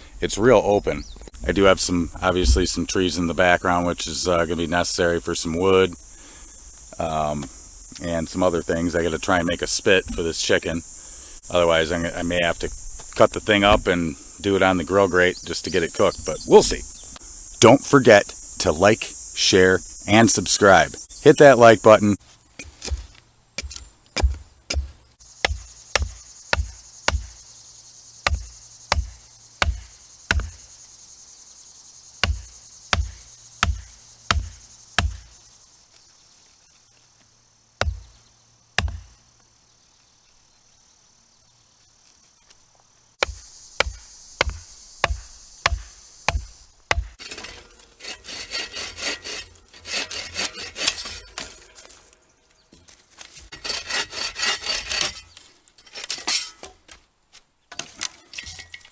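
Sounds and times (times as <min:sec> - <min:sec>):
insects buzzing: 0:00.0 - 0:56.7
chopping blows into wood: 0:22.6 - 0:27.3, 0:28.3 - 0:30.6, 0:32.2 - 0:35.3, 0:38.8 - 0:39.1, 0:43.2 - 0:47.2
saw strokes through wood: 0:47.2 - 0:51.7, 0:53.5 - 0:55.3.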